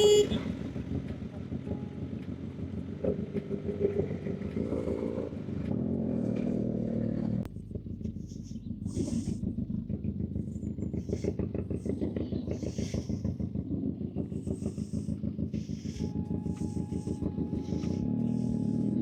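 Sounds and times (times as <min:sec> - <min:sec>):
motorcycle engines idling: 0:00.0 - 0:19.0.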